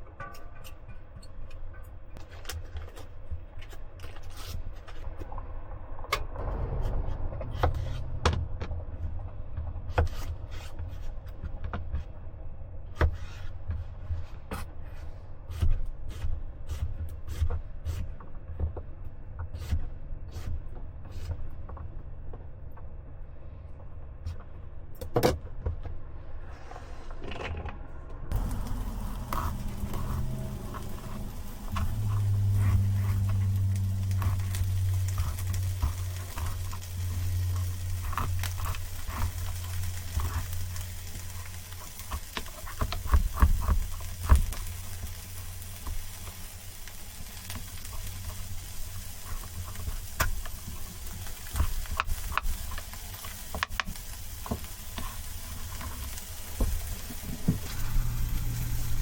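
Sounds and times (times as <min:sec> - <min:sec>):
low rumble: 0:05.0 - 0:12.9, 0:25.9 - 0:42.7, 0:56.9 - 0:59.0
small objects clicking and tapping: 0:28.3 - 0:57.8.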